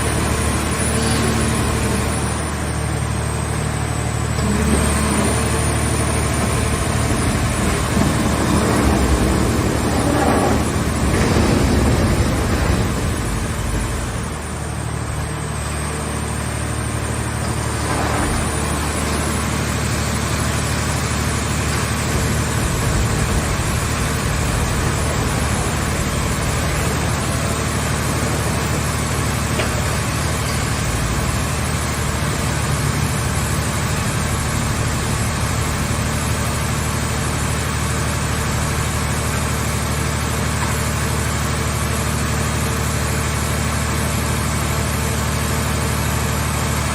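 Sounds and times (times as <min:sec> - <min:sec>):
baler engine droning: 0:03.8 - 0:15.8.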